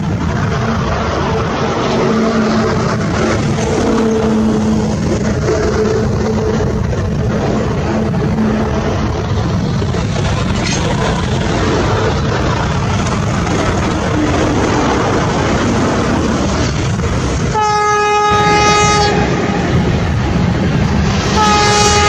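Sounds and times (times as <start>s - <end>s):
train wheels rumbling on rail: 0.0s - 22.0s
train horn blast: 17.5s - 19.6s, 21.2s - 22.0s.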